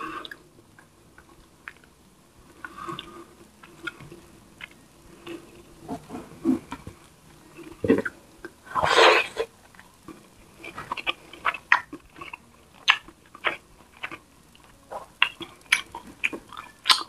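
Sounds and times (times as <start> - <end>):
soft wet chewing: 0.0 - 17.0.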